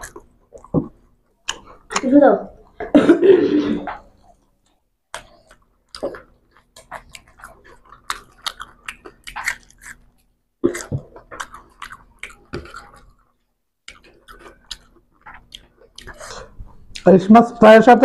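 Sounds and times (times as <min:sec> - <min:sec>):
chewing with mouth clicks: 0:00.0 - 0:02.8, 0:03.9 - 0:17.1.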